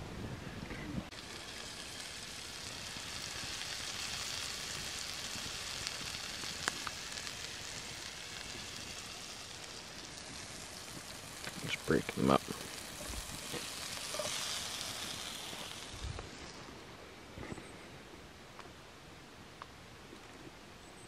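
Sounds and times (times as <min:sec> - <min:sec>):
food sizzling in a pan: 0:01.1 - 0:16.7.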